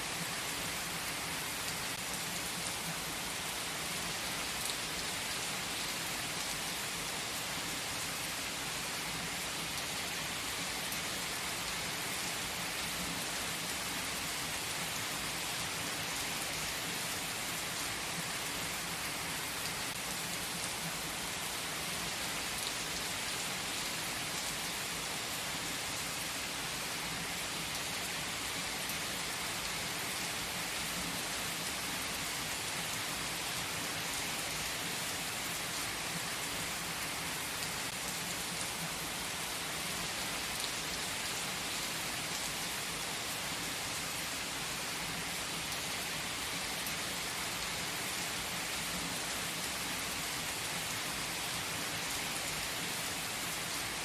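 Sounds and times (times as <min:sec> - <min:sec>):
rain falling on a surface: 0:00.0 - 0:54.0.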